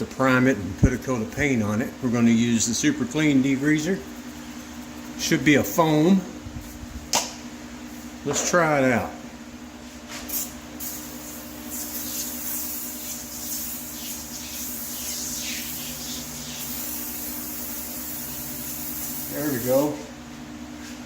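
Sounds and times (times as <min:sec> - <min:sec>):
aerosol can spraying hiss: 0:10.3 - 0:19.8.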